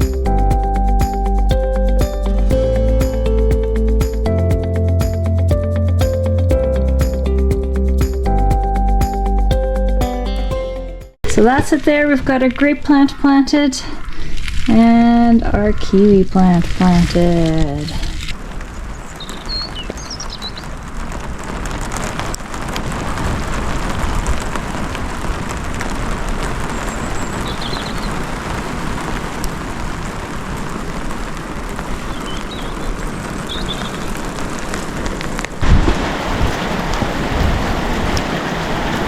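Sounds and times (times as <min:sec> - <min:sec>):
rain pattering on roof: 0:20.7 - 0:39.0.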